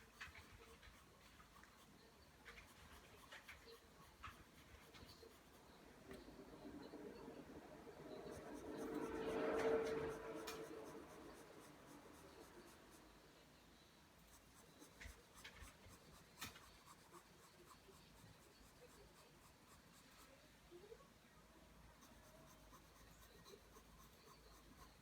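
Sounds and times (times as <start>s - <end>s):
pencil ticks: 0.0s - 6.2s, 8.6s - 13.0s, 14.2s - 20.4s
pencil scratching on paper: 0.0s - 6.3s, 7.9s - 13.4s, 14.2s - 20.4s, 21.9s - 25.0s.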